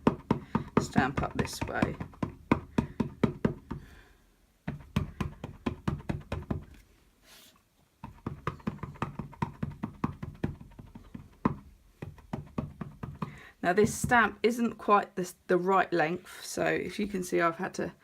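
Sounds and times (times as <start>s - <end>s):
ink pad tapping on rubber stamp: 0.0s - 3.8s, 4.7s - 6.7s, 8.0s - 14.3s.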